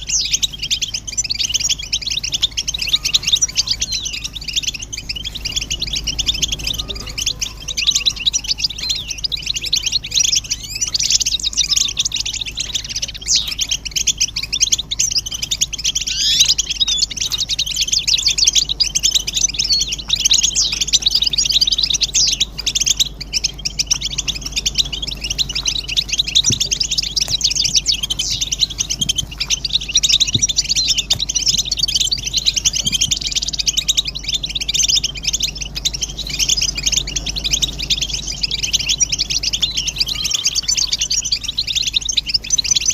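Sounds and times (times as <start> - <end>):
goldfinches twittering and singing: 0.0 - 42.9.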